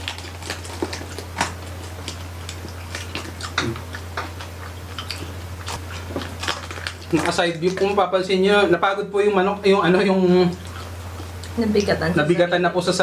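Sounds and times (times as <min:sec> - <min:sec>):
chewing and crunching: 0:00.0 - 0:12.4.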